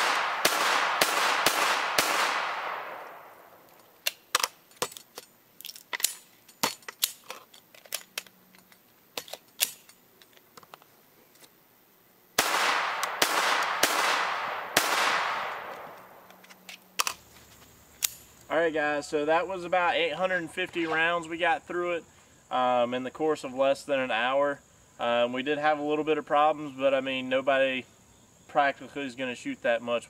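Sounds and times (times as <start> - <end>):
rifle shots with echo: 0.0 - 3.6, 12.4 - 16.2.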